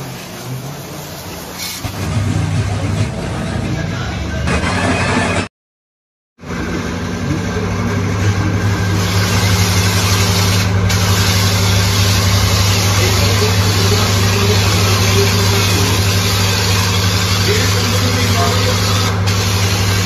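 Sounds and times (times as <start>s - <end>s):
water jet hissing: 0.0s - 2.0s, 8.8s - 20.0s
pressure washer pump hum: 0.0s - 4.5s, 6.4s - 20.0s.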